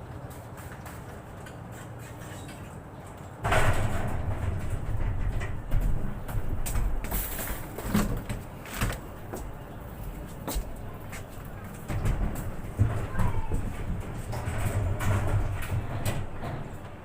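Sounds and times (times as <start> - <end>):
vehicle rumbling: 0.0 - 17.0
clanks and rattles: 0.2 - 17.0.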